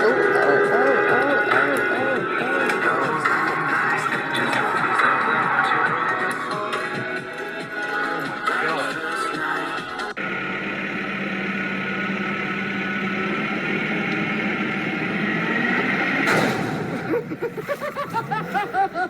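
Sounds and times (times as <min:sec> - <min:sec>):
vehicle engine running: 0:00.0 - 0:06.7, 0:10.1 - 0:19.0
road noise: 0:00.0 - 0:08.5, 0:10.0 - 0:19.0
sudden loud noise: 0:10.2 - 0:18.5.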